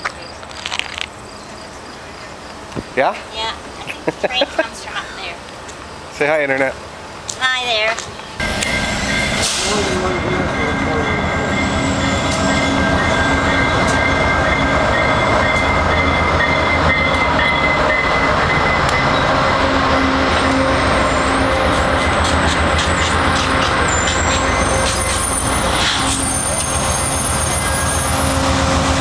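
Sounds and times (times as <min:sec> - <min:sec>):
freight train rumbling past: 0:00.0 - 0:29.0
wheel squeal: 0:20.6 - 0:28.9
wheels clicking over rail joints: 0:21.7 - 0:26.3.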